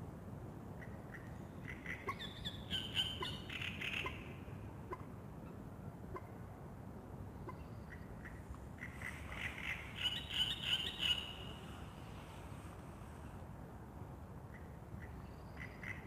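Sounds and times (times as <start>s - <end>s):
bird twittering song: 1.9s - 4.1s, 9.3s - 11.5s.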